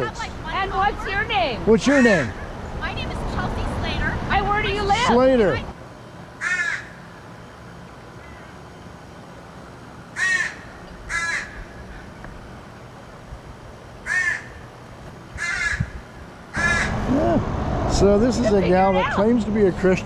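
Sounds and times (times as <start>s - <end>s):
crow cawing: 1.8s - 2.7s, 6.4s - 7.3s, 8.2s - 8.6s, 10.1s - 12.2s, 14.0s - 17.1s.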